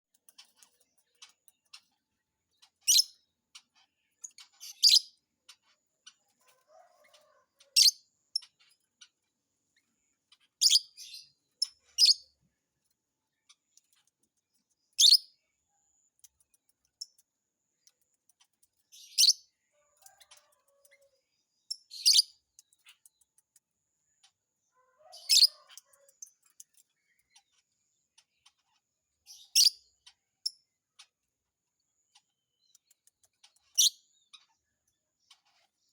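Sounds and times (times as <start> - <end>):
faint small ticks: 0.0 - 9.3, 12.8 - 15.0, 16.0 - 19.0, 19.9 - 24.4, 25.5 - 28.8, 32.1 - 35.9
lovebird chirping: 2.8 - 3.2, 4.3 - 5.2, 10.4 - 12.3, 14.9 - 15.3, 18.9 - 19.5, 29.3 - 30.6, 33.6 - 34.5.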